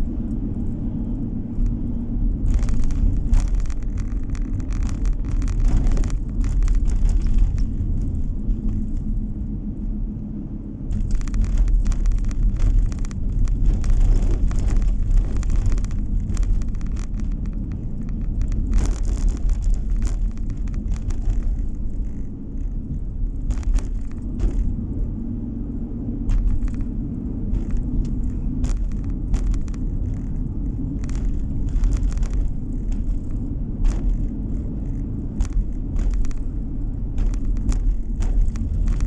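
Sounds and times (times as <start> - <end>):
rapid clicks and knocks: 0.0 - 9.5, 10.9 - 39.0
car road noise: 0.0 - 39.0.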